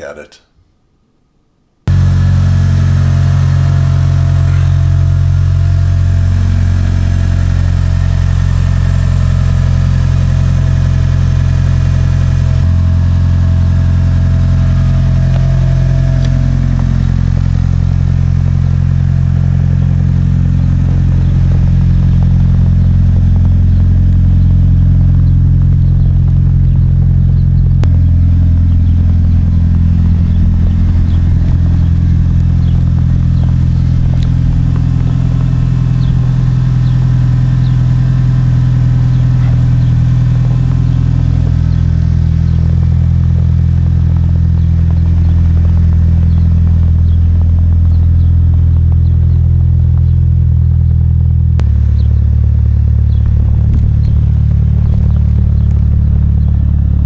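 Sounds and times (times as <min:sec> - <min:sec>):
car engine idling: 0:01.9 - 0:57.0.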